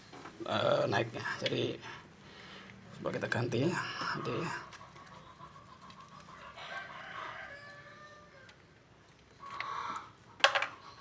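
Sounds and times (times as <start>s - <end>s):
rooster crowing: 6.5s - 8.6s.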